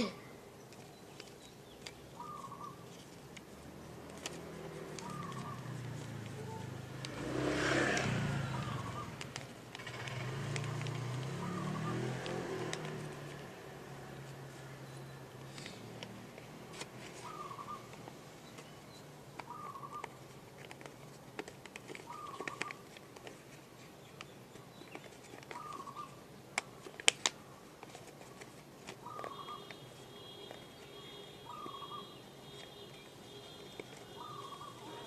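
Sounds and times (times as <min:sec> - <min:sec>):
paper crinkling by hand: 0:00.6 - 0:06.7, 0:15.4 - 0:30.9, 0:32.4 - 0:35.0
bird calling: 0:00.8 - 0:03.1, 0:04.9 - 0:06.8, 0:08.3 - 0:09.2, 0:11.2 - 0:12.2, 0:17.2 - 0:20.3, 0:22.0 - 0:22.9, 0:24.1 - 0:27.6, 0:28.3 - 0:35.0.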